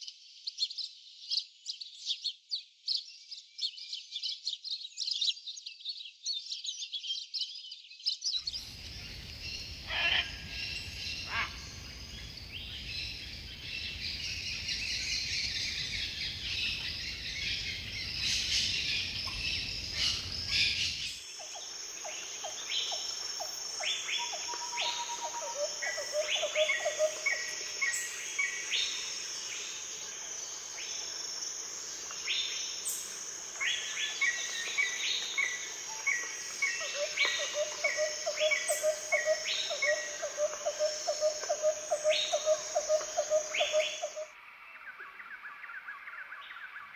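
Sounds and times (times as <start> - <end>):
birds calling and chirping: 0.5 - 31.2, 31.9 - 44.3
high-pitched insect drone: 18.3 - 44.3.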